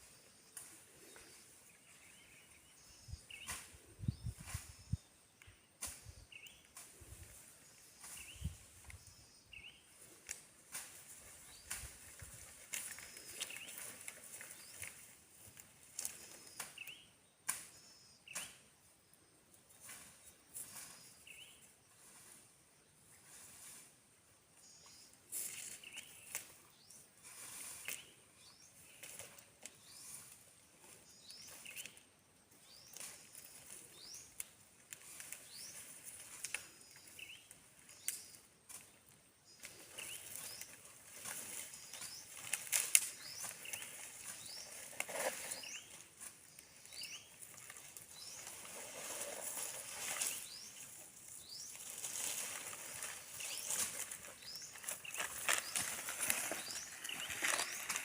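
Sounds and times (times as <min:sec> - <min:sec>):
bird chirping: 0:27.8 - 0:34.6, 0:35.3 - 0:38.5, 0:39.4 - 0:58.0
rustling and crackling: 0:32.6 - 0:58.0.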